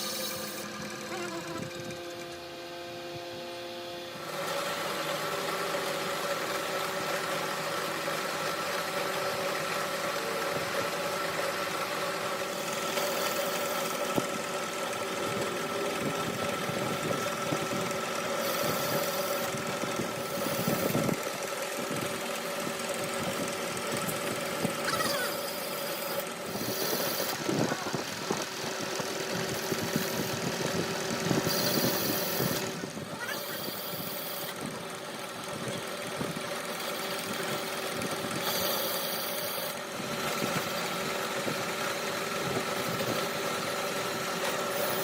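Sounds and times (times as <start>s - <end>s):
machine humming: 0.0s - 6.2s, 8.9s - 35.0s.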